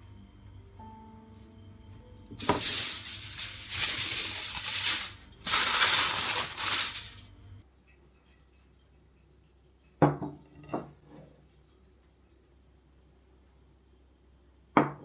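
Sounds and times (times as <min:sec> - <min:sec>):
loud hissing bursts: 0:02.4 - 0:07.2.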